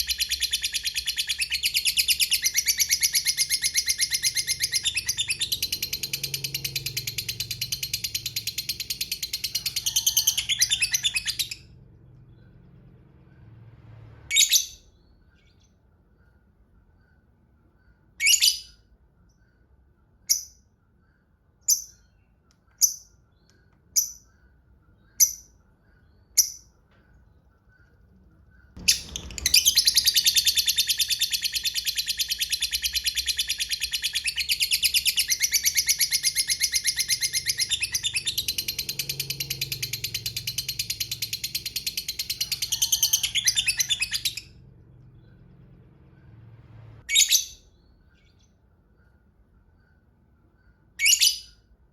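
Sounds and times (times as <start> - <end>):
lovebird sharp high chirps: 0.0 - 11.7, 28.6 - 44.6, 51.0 - 51.7.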